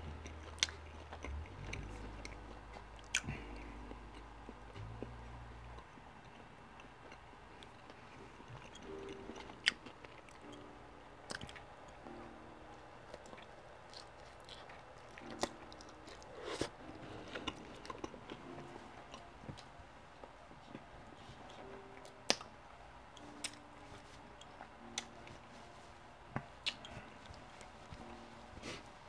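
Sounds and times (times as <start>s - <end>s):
chewing pizza: 0.0s - 10.6s, 11.2s - 11.7s, 13.0s - 22.5s, 26.3s - 28.8s.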